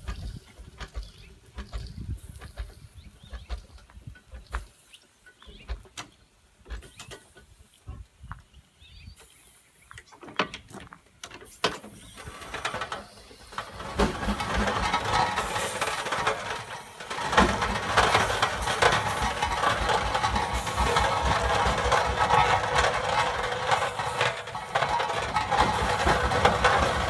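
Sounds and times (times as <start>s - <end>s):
clicks and knocks: 10.2s - 27.0s
steam hissing: 11.5s - 27.0s.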